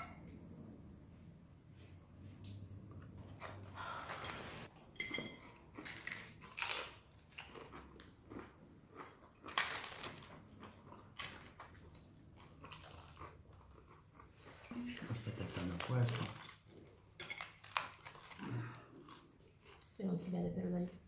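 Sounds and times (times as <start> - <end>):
flatbread crunching: 15.9 - 19.8.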